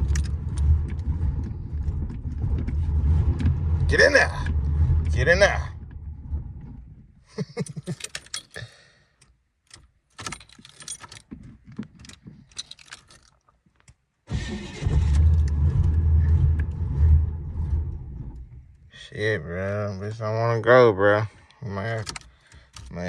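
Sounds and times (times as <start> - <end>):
car starter cranking: 0.0 - 7.0, 14.3 - 18.8
keys jangling: 7.6 - 8.6, 10.2 - 13.5.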